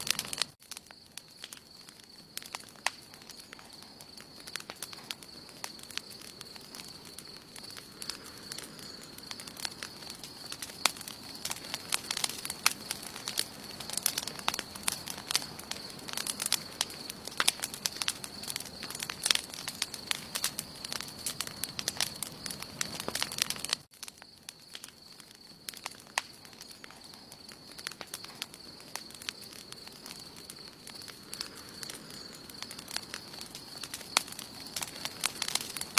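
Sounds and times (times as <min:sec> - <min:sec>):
campfire crackling and popping: 0:00.0 - 0:35.9.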